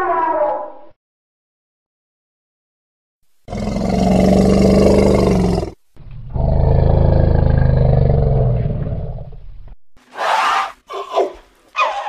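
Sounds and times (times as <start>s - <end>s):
low animal roars: 3.5s - 9.4s.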